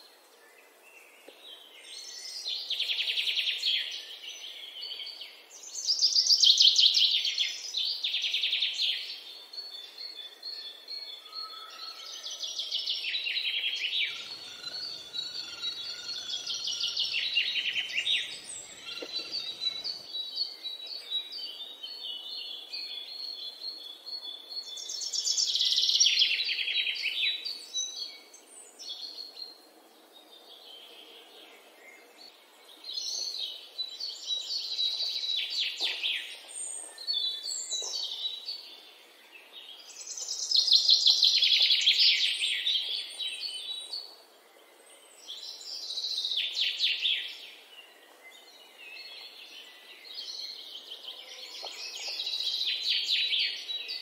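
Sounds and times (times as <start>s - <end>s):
soft bird chirps: 13.6s - 22.3s
birds chattering: 14.0s - 20.1s.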